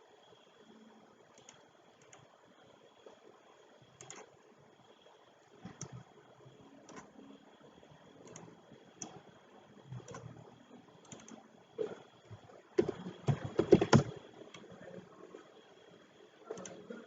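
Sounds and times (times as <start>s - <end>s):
computer keyboard typing: 1.4s - 2.3s, 3.9s - 4.3s, 5.6s - 6.1s, 6.8s - 7.1s, 8.2s - 9.2s, 9.9s - 12.0s, 12.8s - 14.7s, 16.5s - 17.0s.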